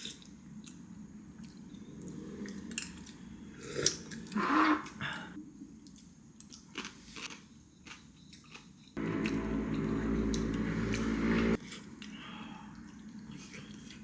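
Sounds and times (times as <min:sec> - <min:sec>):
loud noisy burst: 0:09.0 - 0:11.6.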